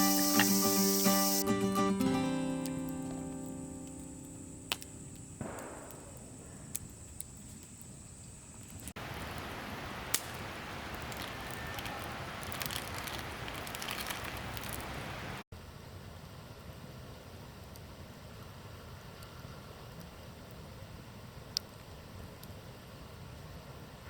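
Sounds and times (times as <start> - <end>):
acoustic guitar notes ringing: 0.0 - 5.4
fire hissing: 0.0 - 15.4
wood fire crackling and popping: 0.0 - 15.4.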